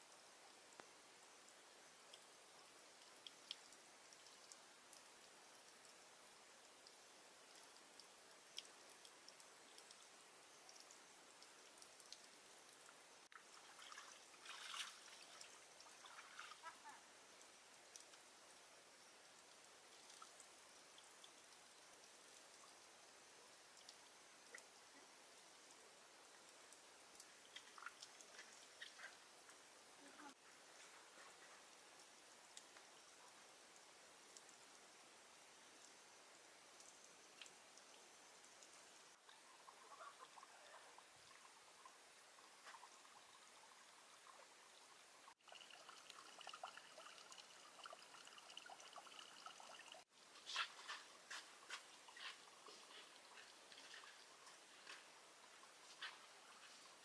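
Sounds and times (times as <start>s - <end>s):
faint steady hiss: 0.0s - 57.0s
faint trickling water: 0.0s - 57.0s
water drips: 0.0s - 57.0s
small clicks and ticks: 2.0s - 13.6s, 15.1s - 18.7s, 19.3s - 23.0s, 23.6s - 34.8s, 36.7s - 39.4s.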